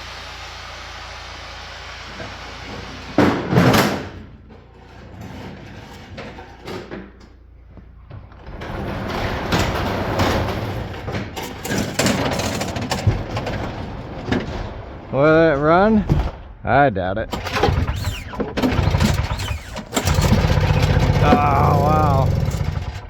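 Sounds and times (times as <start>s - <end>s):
small engine trying to fire: 17.3s - 23.0s
recoil cord pulls: 17.4s - 23.0s.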